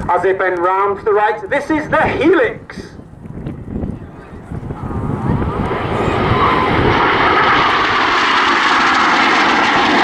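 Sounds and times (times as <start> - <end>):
jet engines roaring: 3.5 - 10.0.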